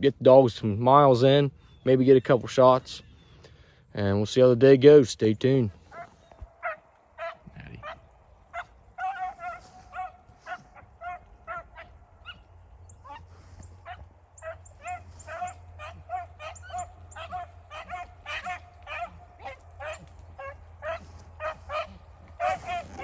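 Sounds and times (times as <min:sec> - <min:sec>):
dogs baying: 0:05.8 - 0:23.0.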